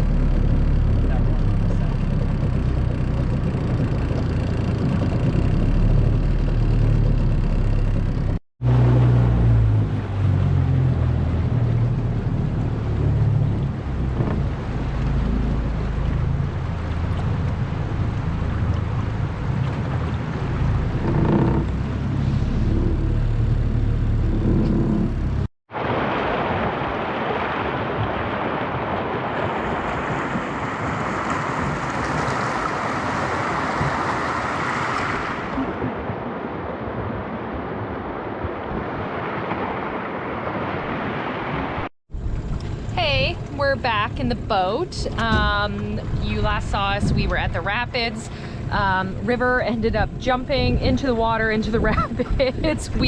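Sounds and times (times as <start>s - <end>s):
outboard motor rumbling: 0.0s - 53.0s
rushing water: 8.6s - 24.5s, 25.7s - 44.3s.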